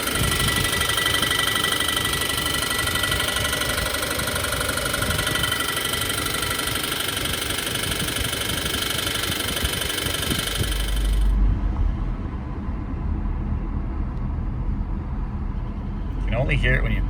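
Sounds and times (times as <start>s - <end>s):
car engine knocking: 0.0s - 11.4s.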